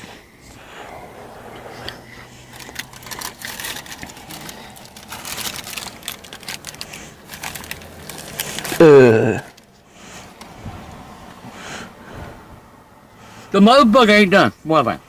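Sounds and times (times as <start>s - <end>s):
low hum: 0.0s - 6.8s
paper wrapper crinkling: 2.5s - 9.7s.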